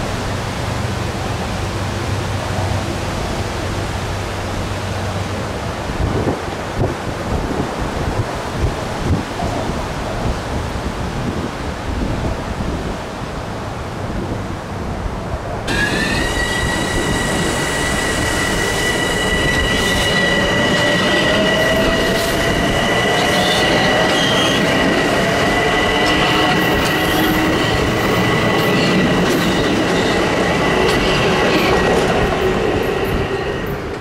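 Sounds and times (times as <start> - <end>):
electric train motor whine: 15.7 - 34.0
train wheels squealing: 15.7 - 34.0.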